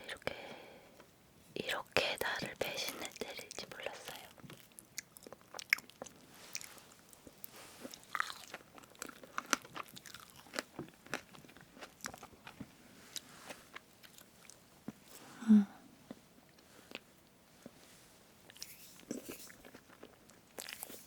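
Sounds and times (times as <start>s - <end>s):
chewing with wet sticky clicks: 2.9s - 13.2s, 18.4s - 21.0s.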